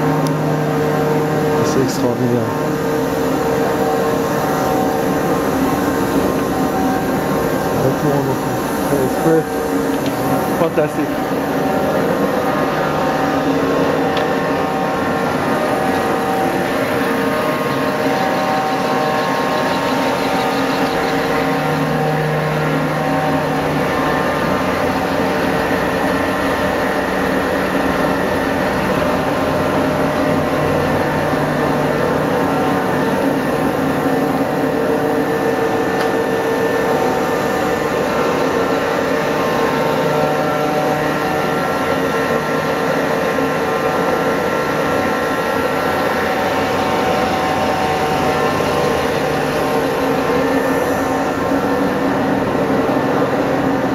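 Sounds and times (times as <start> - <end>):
locomotive mechanical drone: 0.0 - 53.9.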